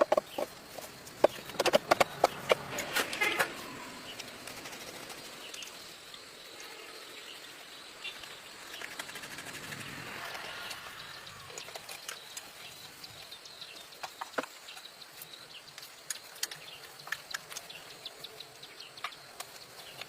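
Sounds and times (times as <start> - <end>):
high insect buzz: 0.0 - 12.1.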